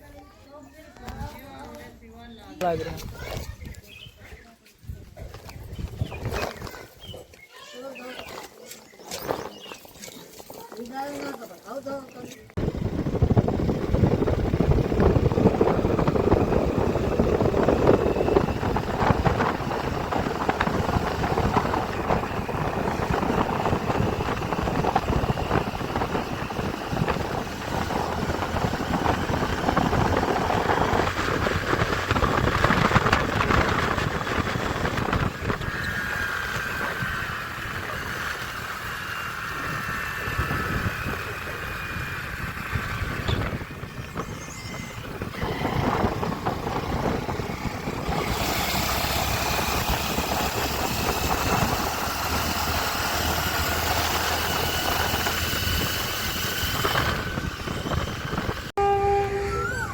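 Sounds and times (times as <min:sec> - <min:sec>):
tractor engine running: 0:12.5 - 0:59.9.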